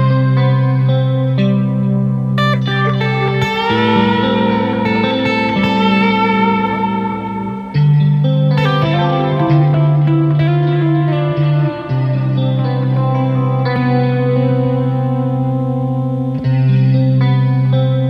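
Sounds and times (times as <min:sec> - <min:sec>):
electric guitar with effects: 0:00.0 - 0:18.0.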